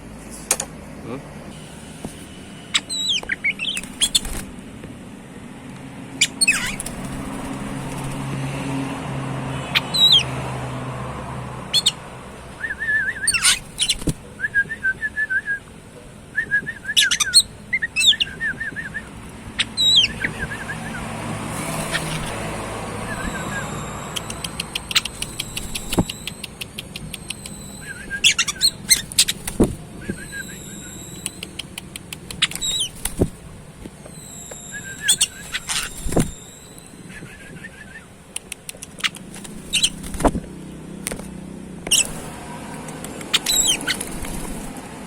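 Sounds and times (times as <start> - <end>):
bird chattering notes: 2.8 - 4.4, 6.2 - 8.2, 9.7 - 10.6, 11.6 - 14.2, 16.9 - 33.4, 34.0 - 40.2, 43.2 - 44.7
bird whistled notes sliding down: 16.5 - 33.3, 34.0 - 38.0, 43.3 - 44.7.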